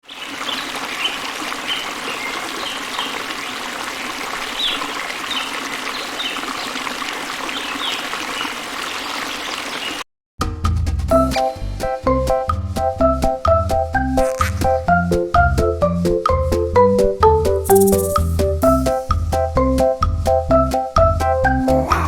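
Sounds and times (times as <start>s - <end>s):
water trickling: 0.1s - 10.0s
short high falling chirps: 14.2s - 14.8s, 17.7s - 18.4s.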